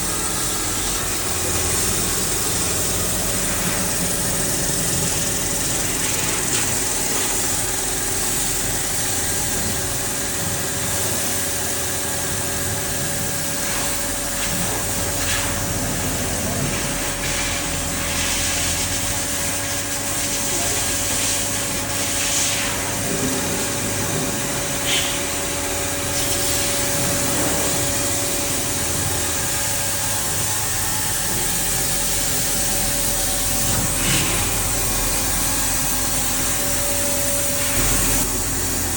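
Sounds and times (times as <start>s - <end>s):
lathe machine hum: 0.0s - 20.1s, 21.5s - 38.9s.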